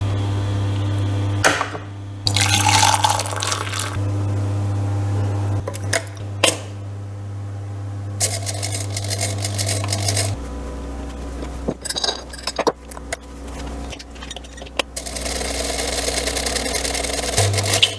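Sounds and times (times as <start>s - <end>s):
small electric motor humming: 8.2s - 10.5s, 14.0s - 17.9s.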